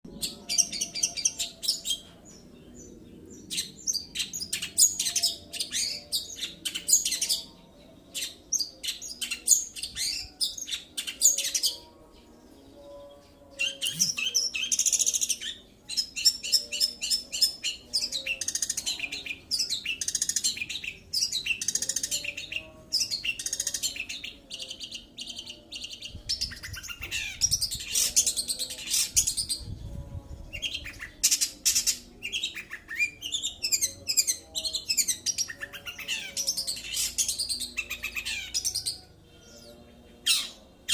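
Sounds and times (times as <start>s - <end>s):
bird chattering song: 13.6s - 29.7s.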